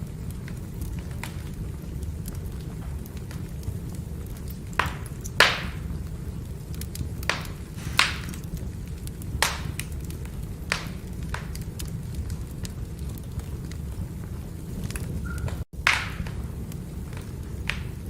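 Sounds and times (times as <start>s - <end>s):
firewood crackling: 0.0s - 18.0s
low rumble of fire: 0.0s - 18.0s
sharp pops of fire: 0.0s - 18.0s.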